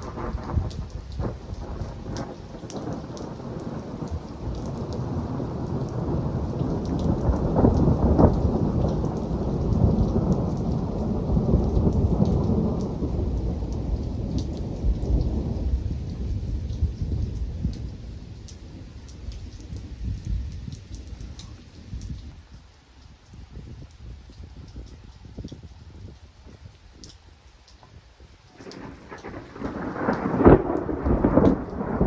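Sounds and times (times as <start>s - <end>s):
rolling thunder: 0.0s - 21.5s, 28.6s - 32.0s
rain pattering: 0.0s - 32.0s.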